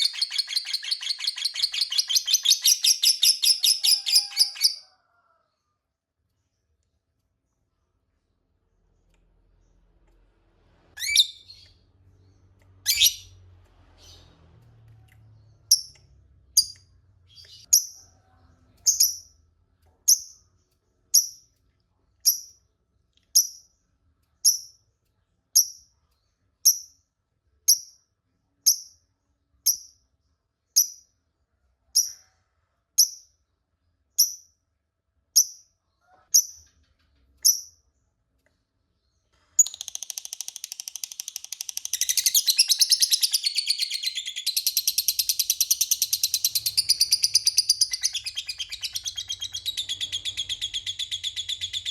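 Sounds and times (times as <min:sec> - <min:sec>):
lovebird shrill calls: 0:11.0 - 0:11.6, 0:12.8 - 0:13.3.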